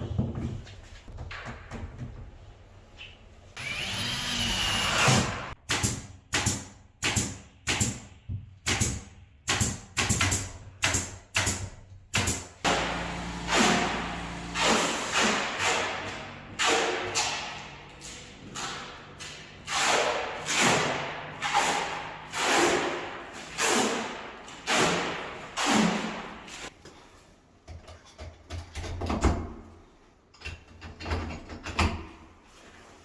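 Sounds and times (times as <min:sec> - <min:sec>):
power tool whirring: 0:03.6 - 0:05.6.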